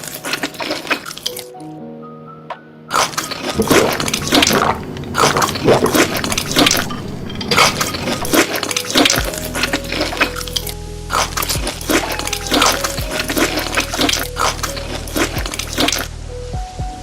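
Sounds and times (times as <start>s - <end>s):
wet chewing mouth sounds: 2.9s - 16.1s.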